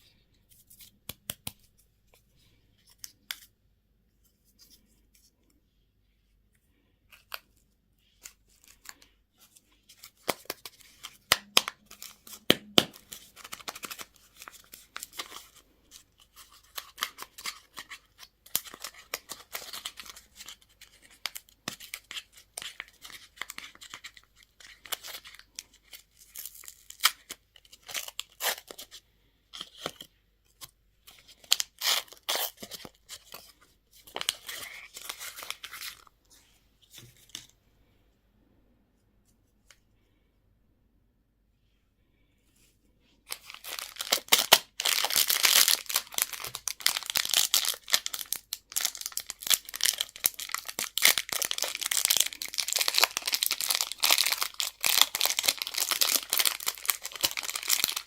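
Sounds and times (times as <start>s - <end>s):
plastic packaging crinkling: 43.3s - 58.0s
plastic packaging tearing: 43.3s - 58.0s.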